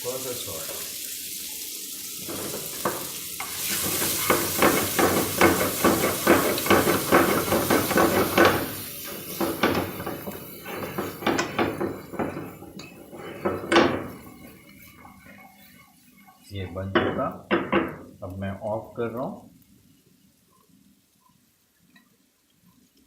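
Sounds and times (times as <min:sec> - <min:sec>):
food sizzling in oil: 0:00.0 - 0:21.6
utensil scraping in frying pan: 0:00.5 - 0:18.2.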